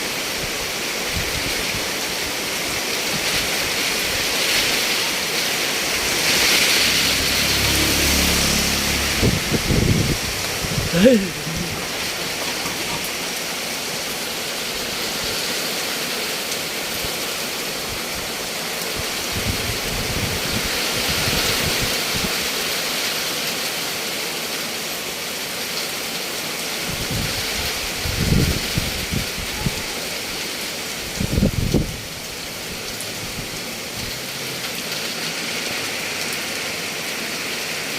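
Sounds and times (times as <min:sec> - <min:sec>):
heavy rain pouring: 0:00.0 - 0:37.9
wind buffeting microphone: 0:09.1 - 0:11.0, 0:19.3 - 0:22.3, 0:26.9 - 0:29.9, 0:31.1 - 0:32.1.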